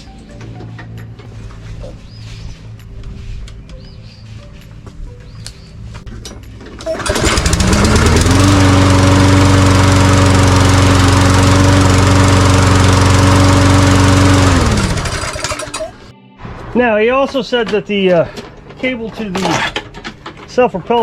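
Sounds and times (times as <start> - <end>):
lawn mower engine pull-started: 6.6 - 16.1.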